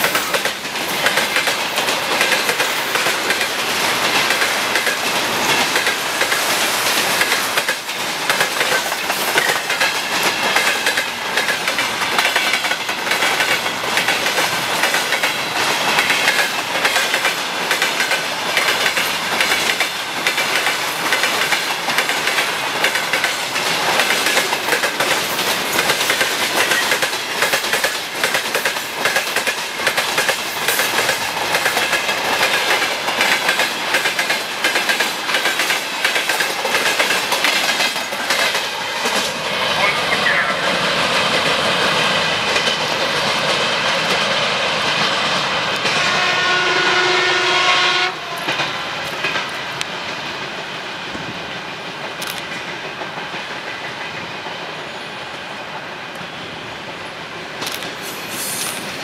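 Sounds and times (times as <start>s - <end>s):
wheels clicking over rail joints: 0.0s - 39.6s
freight train rolling past: 0.0s - 59.0s.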